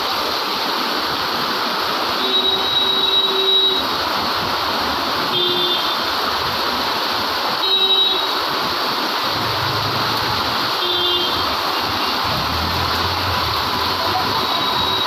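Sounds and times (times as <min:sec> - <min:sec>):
heavy rain pouring: 0:00.0 - 0:15.0
low engine rumble: 0:11.8 - 0:14.4.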